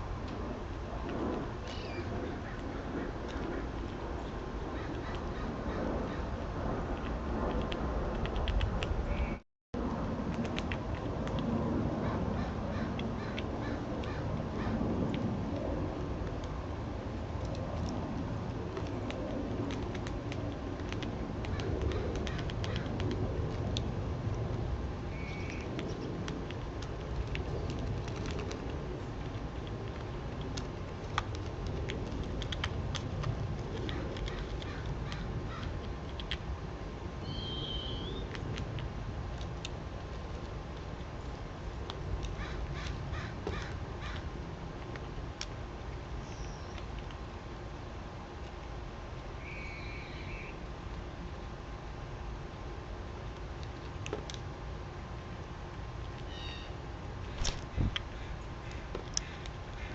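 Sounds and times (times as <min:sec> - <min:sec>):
low background rumble: 0:00.0 - 0:59.9
birds chirping: 0:37.2 - 0:38.3
crow cawing: 0:59.2 - 0:59.9.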